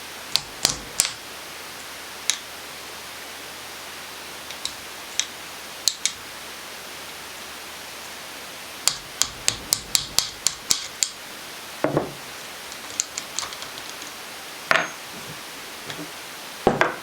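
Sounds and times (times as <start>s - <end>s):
heavier metal knock: 11.8s - 12.2s
metal tapping on metal pin: 14.7s - 15.0s.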